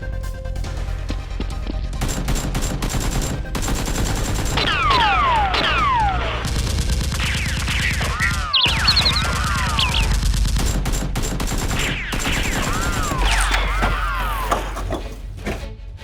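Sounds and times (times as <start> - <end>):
gunfire volleys: 2.0 - 13.8
ricochet whines: 11.8 - 14.8.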